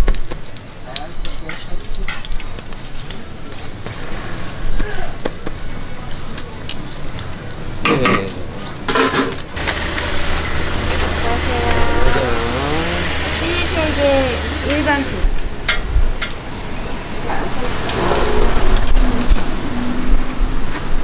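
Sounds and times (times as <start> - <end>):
pancakes sizzling in oil: 0.0 - 21.0
metal tongs scraping griddle: 1.2 - 2.4, 8.0 - 15.2, 17.8 - 19.4.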